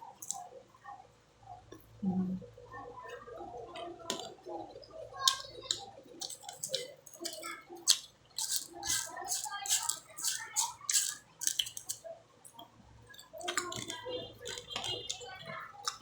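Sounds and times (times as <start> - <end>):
wet chewing and smacking: 3.7 - 16.0.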